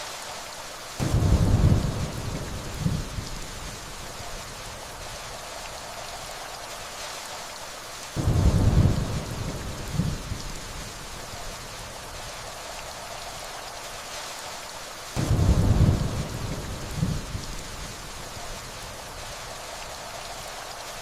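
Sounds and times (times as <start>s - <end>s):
steady rainfall: 0.0s - 21.0s
distant thunder rolls: 1.0s - 4.3s, 8.2s - 13.1s, 15.2s - 18.4s.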